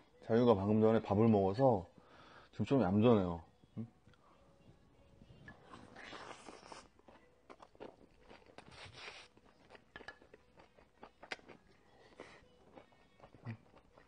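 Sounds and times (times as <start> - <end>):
person chewing: 5.8 - 14.0.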